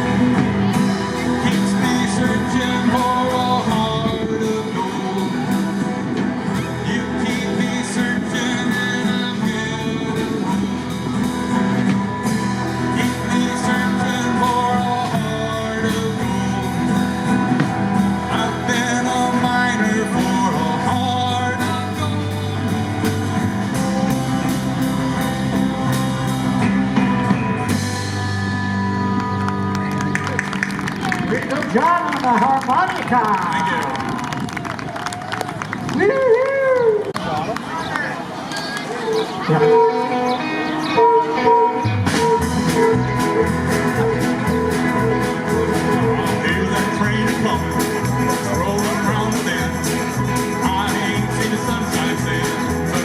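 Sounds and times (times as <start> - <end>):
drum kit beat: 0.0 - 29.2, 41.9 - 53.0
live rock band: 0.0 - 36.9, 38.6 - 53.0
guitar: 0.0 - 53.0.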